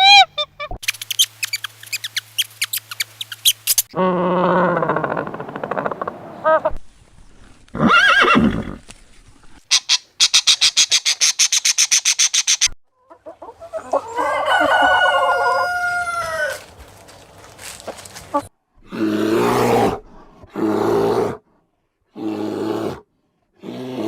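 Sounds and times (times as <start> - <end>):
fast high sharp clicks: 0.8 - 3.9, 10.3 - 12.8
rooster crowing: 13.8 - 16.8.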